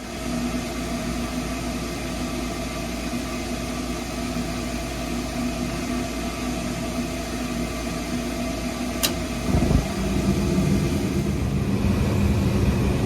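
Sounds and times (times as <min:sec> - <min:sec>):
deep furnace rumble: 0:00.0 - 0:13.0
furnace motor hum: 0:00.0 - 0:13.0
sharp click: 0:09.0 - 0:09.2.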